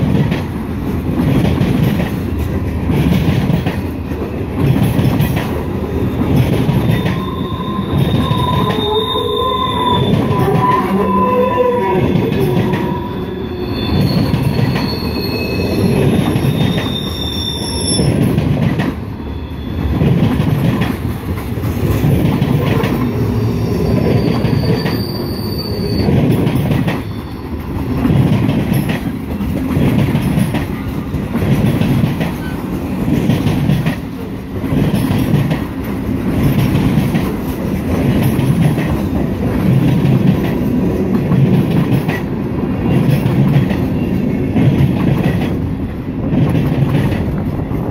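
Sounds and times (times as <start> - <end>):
freight cars rumbling on rails: 0.0 - 47.9
high-pitched wheel squeals: 6.7 - 18.3, 23.2 - 26.3, 26.9 - 27.6.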